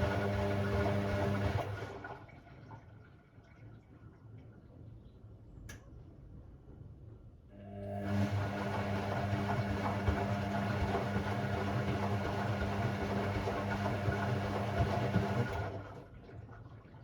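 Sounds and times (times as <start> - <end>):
washing machine running: 0.0 - 2.8, 7.5 - 17.0.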